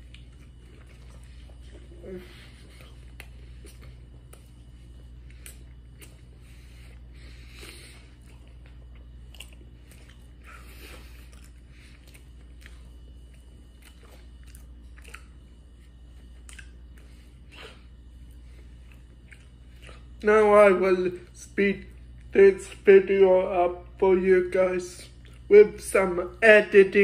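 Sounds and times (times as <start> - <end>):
person chewing food: 0.0 - 20.2, 25.1 - 25.6
steady low hum: 0.0 - 27.0.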